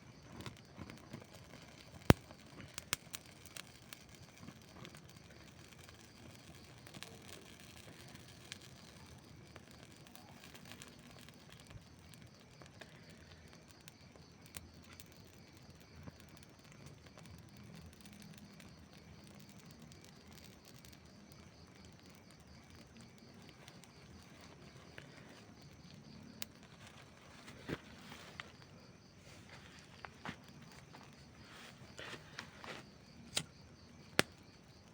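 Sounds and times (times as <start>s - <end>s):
campfire crackling and popping: 0.0s - 34.9s
faint low hiss: 17.2s - 34.9s.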